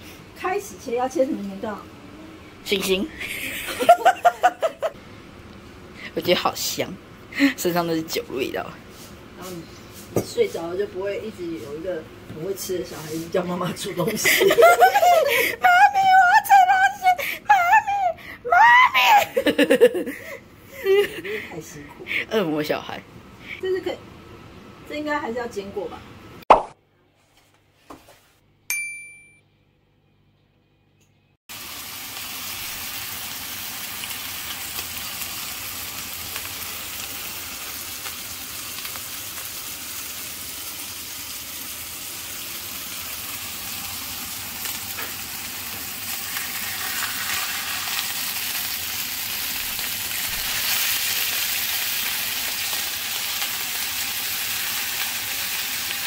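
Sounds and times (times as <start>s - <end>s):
food sizzling in frying pan: 31.5s - 56.0s.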